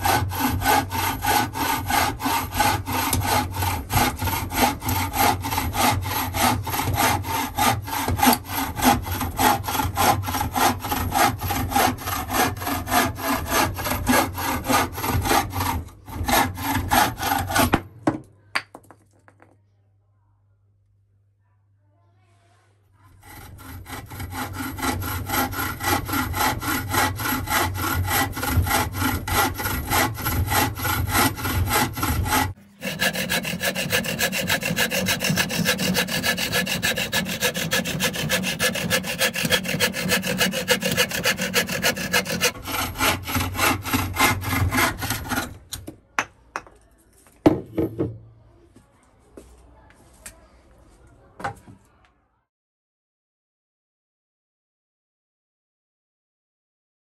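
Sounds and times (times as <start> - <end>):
hand saw cutting wood: 0.0 - 17.9, 23.1 - 45.9.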